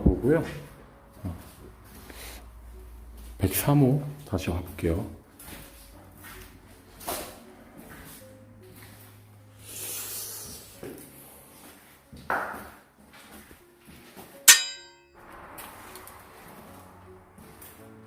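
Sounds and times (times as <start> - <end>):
sharp metallic clang: 14.5 - 15.2.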